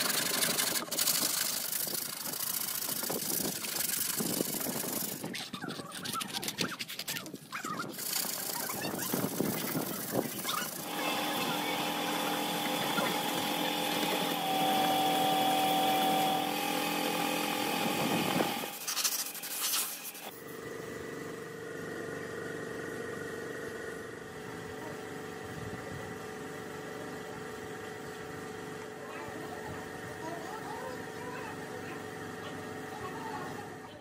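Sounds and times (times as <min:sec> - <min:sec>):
motor humming: 0:00.0 - 0:06.6, 0:07.7 - 0:33.8.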